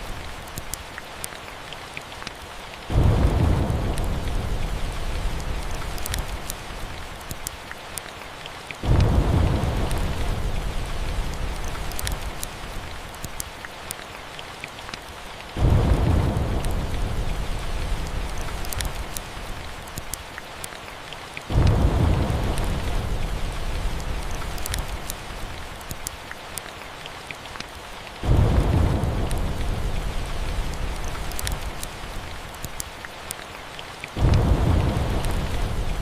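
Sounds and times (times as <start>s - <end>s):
steady rain: 0.0s - 36.0s
small sharp ticks: 0.5s - 2.4s, 5.9s - 6.6s, 7.2s - 8.1s, 11.8s - 12.5s, 13.1s - 15.1s, 18.4s - 19.3s, 19.9s - 20.8s, 24.5s - 25.2s, 25.8s - 27.8s, 31.1s - 31.9s, 32.5s - 34.2s
thunder rolling: 2.9s - 5.8s, 15.6s - 18.9s, 21.5s - 24.4s, 34.2s - 36.0s.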